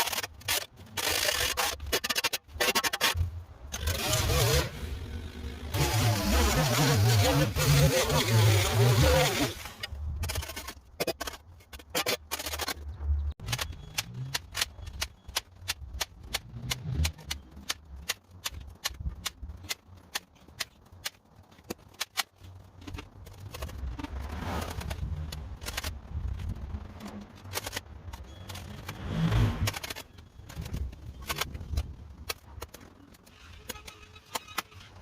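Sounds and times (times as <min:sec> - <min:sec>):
sharp clicks or snaps: 0:12.1 - 0:26.0.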